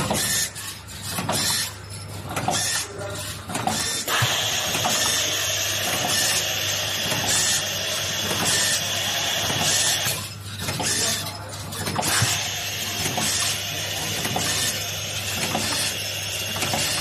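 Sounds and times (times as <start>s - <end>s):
machine humming: 1.0s - 17.0s
cycling machine hiss: 4.1s - 10.2s.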